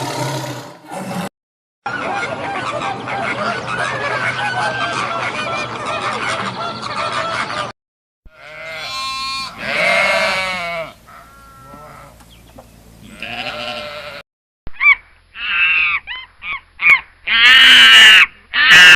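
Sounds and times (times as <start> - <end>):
goat or sheep bleating: 8.3 - 12.2, 13.0 - 14.2.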